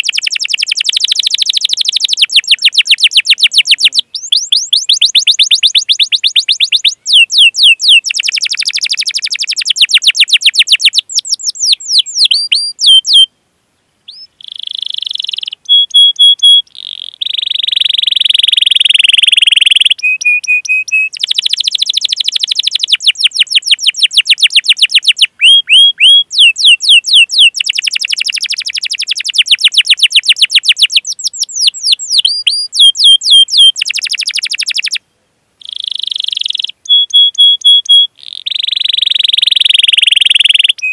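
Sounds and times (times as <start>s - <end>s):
canary singing trills: 0.0s - 13.3s, 14.1s - 35.0s, 35.6s - 40.9s.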